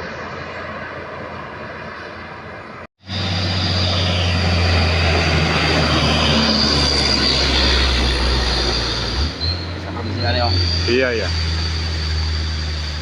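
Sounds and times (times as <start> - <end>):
diesel truck engine under load: 3.0 - 13.0.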